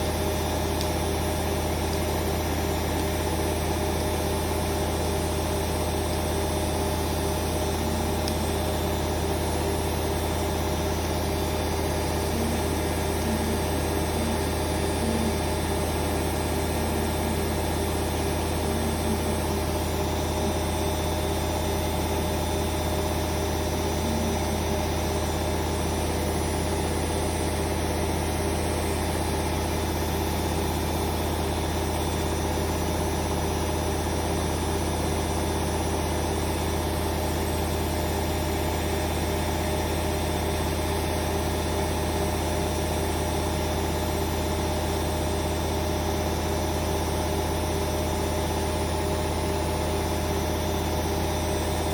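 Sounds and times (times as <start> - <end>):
washing machine drum spinning: 0.0 - 34.2.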